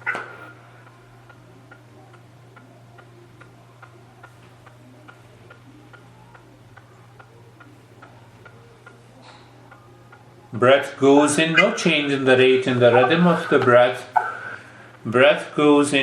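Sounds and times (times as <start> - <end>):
faint regular ticking: 0.0 - 12.4
low electrical hum: 0.0 - 16.0.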